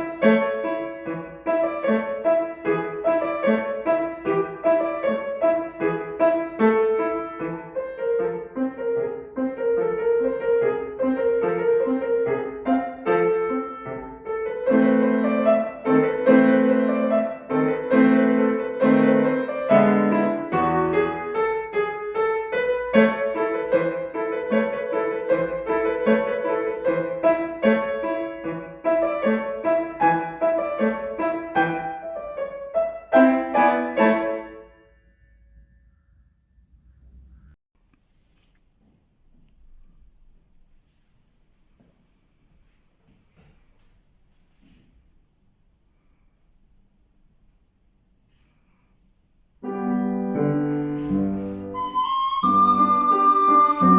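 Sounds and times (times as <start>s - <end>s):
classical piano piece: 0.0s - 35.0s, 49.6s - 53.9s.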